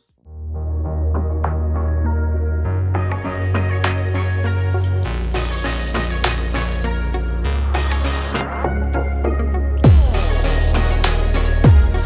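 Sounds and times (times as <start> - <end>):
electronic beat with deep bass: 3.0 - 12.0
deep falling kick drum hit: 9.9 - 10.3.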